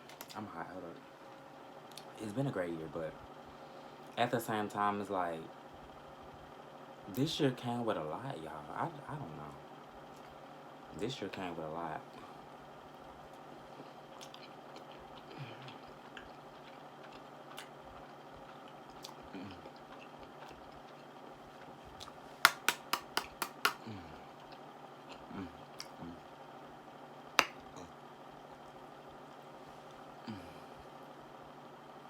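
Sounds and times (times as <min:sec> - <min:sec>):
person chewing: 0:14.1 - 0:26.2
lip smacking: 0:18.9 - 0:20.9, 0:25.8 - 0:26.1.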